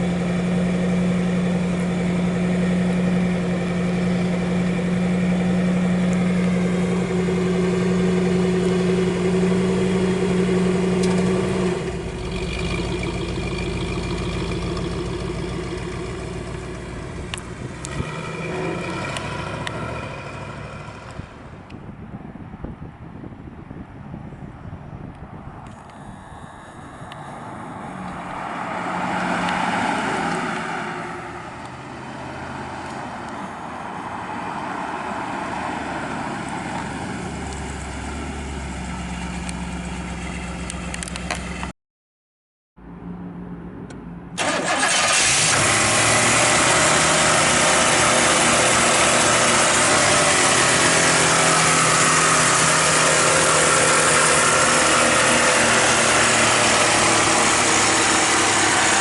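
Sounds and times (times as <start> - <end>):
car engine idling: 0.0 - 21.8.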